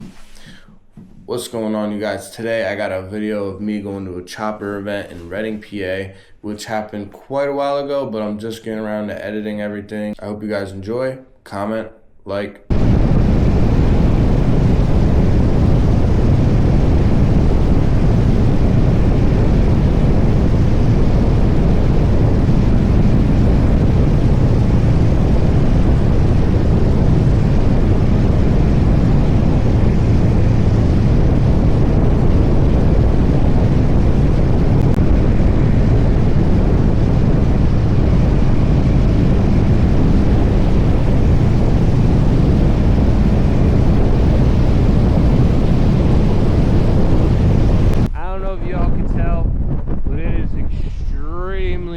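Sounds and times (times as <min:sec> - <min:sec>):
wind rushing over microphone: 0:12.7 - 0:51.9
motorcycle engine cruising: 0:12.8 - 0:48.0.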